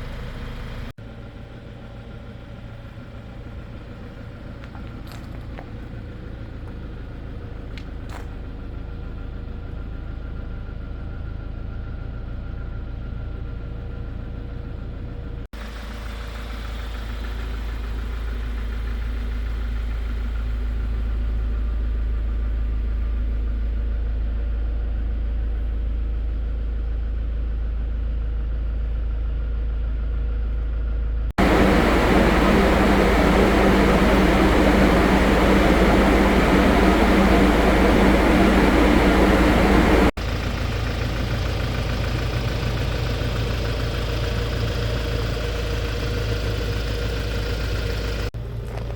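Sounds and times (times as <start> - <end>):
diesel truck engine idling: 31.4 - 48.8.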